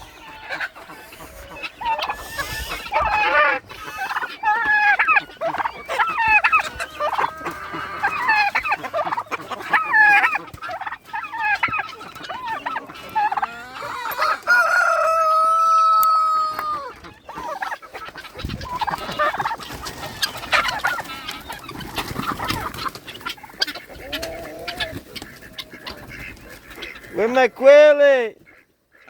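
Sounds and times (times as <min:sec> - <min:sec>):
chickens clucking: 0:00.0 - 0:29.0
rooster crowing: 0:13.6 - 0:16.9.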